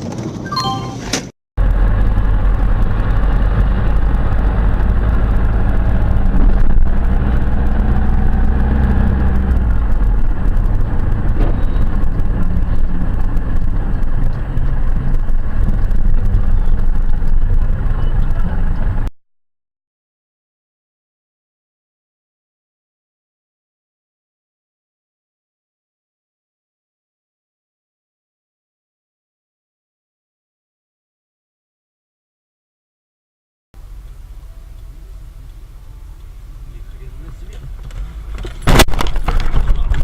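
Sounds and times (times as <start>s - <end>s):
motor vehicle engine and road noise: 0.0s - 19.1s, 33.8s - 40.0s.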